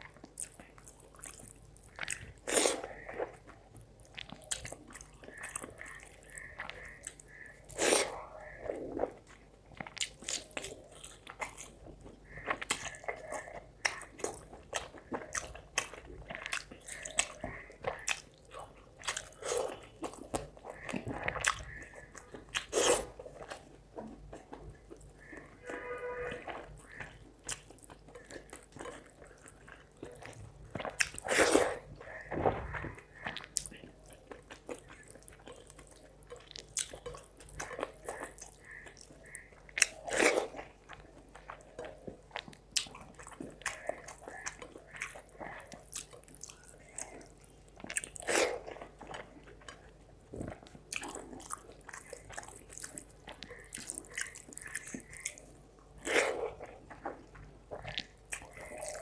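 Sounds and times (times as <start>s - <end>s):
wet chewing: 0.0s - 59.0s.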